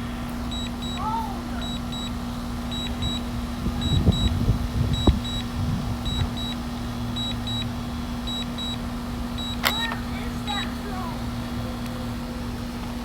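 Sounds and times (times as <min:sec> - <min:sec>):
steady low hum: 0:00.0 - 0:13.0
short high beeps: 0:00.5 - 0:04.4, 0:05.0 - 0:06.6, 0:09.4 - 0:10.0.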